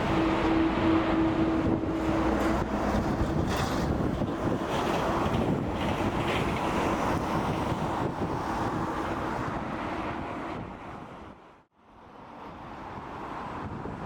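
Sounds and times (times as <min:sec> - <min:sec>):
jet engines rumbling: 0:00.0 - 0:10.0
wind buffeting microphone: 0:00.0 - 0:11.6, 0:12.9 - 0:14.0.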